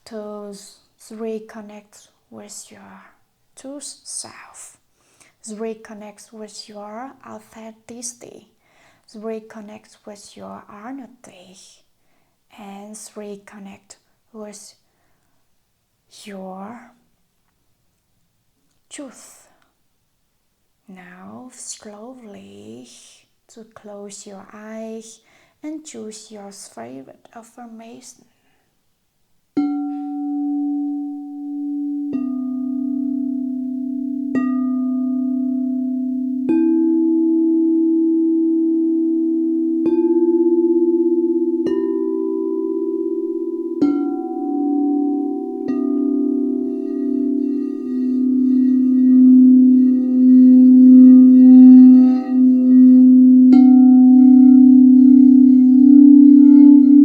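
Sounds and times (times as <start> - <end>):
singing bowls ringing: 29.8 - 57.0.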